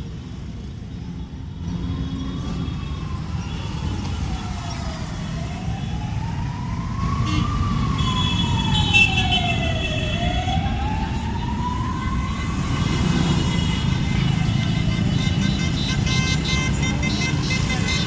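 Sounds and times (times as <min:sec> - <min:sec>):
motorcycle and traffic rumble: 0:00.0 - 0:18.0
siren wailing: 0:01.7 - 0:15.1.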